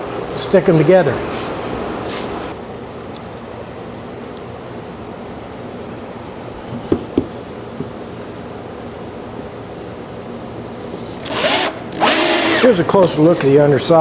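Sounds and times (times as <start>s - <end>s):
steady mechanical hum: 0.0s - 14.0s
light knocks: 6.7s - 8.0s
power drill driving a screw: 11.2s - 12.7s.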